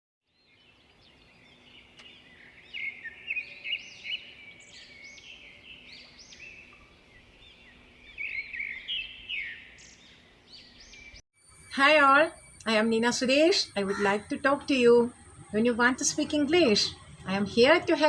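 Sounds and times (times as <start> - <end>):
birds chirping: 0.2 - 18.0
faint steady hum: 11.4 - 18.0.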